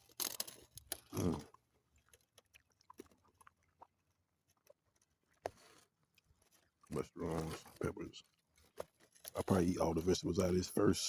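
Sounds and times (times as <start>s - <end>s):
wet chewing clicks: 0.0s - 10.2s
person grunting: 1.1s - 1.5s.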